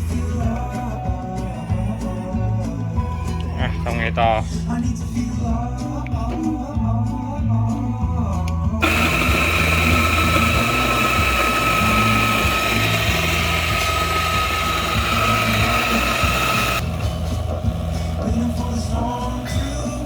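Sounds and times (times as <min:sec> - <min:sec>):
background music: 0:00.0 - 0:20.0
electric coffee grinder whining: 0:08.8 - 0:20.0.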